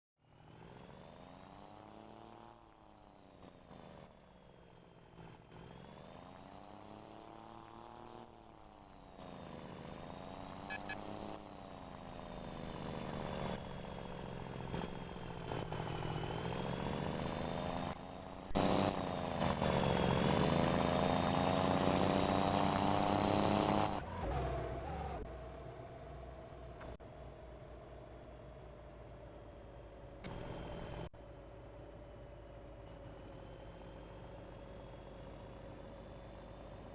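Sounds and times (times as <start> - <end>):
truck engine revving: 14.5 - 25.2.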